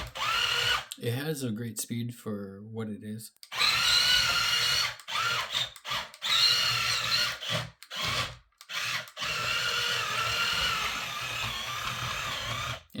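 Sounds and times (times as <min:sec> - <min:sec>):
toy electric motors whining: 0:00.0 - 0:00.9, 0:03.4 - 0:12.9.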